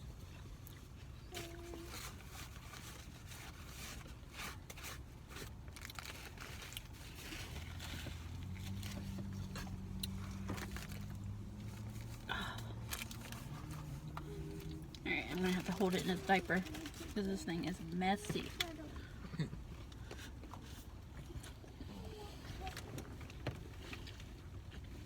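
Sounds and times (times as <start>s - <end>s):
low steady hum: 0.0s - 25.0s
chewing burger: 0.2s - 15.6s, 18.4s - 25.0s
paper wrapper rustling: 2.3s - 18.8s.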